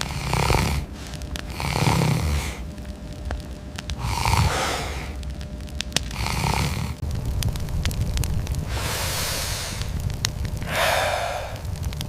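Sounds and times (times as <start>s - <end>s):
slow rasping breaths: 0.0s - 7.0s, 8.6s - 12.0s
small clicks: 5.1s - 6.5s.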